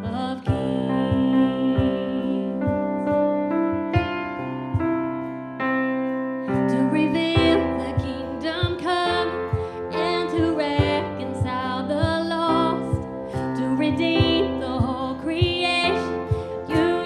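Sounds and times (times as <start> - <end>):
person singing: 0.0 - 3.1, 6.5 - 17.0
keyboard chords: 0.0 - 17.0.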